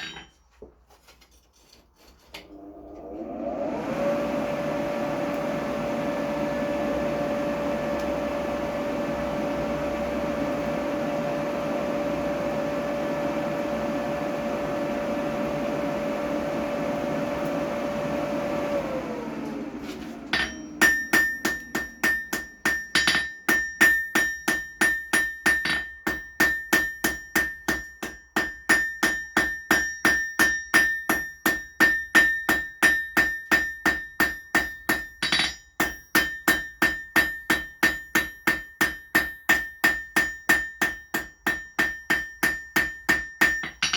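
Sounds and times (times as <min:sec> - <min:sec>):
forge blower motor humming: 0:02.5 - 0:22.8
hammer ringing on anvil: 0:20.3 - 0:43.9.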